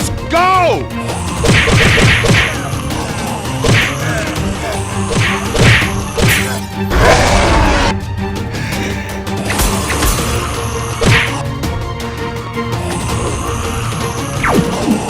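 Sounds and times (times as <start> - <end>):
background music: 0.0 - 15.0
sharp whacks: 1.4 - 2.6, 3.6 - 4.2, 5.1 - 6.6, 11.0 - 11.4.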